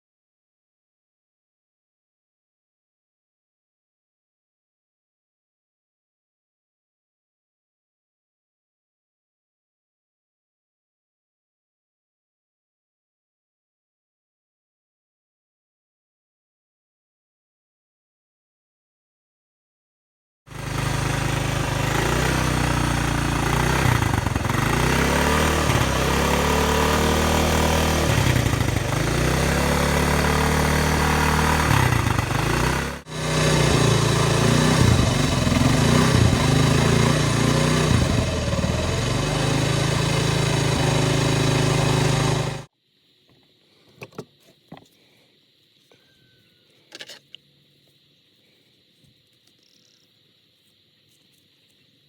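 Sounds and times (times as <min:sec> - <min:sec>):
motorcycle engine running: 0:20.5 - 0:42.7.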